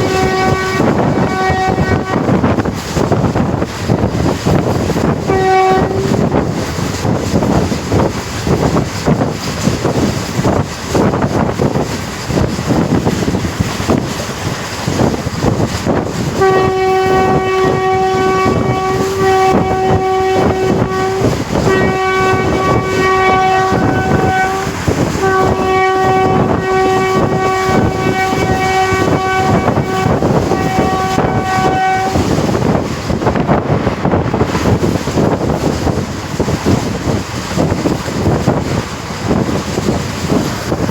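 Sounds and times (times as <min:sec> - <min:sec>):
locomotive horn blasts: 0:00.0 - 0:02.8, 0:04.9 - 0:06.6, 0:15.9 - 0:34.8
train wheels clattering: 0:00.0 - 0:40.9.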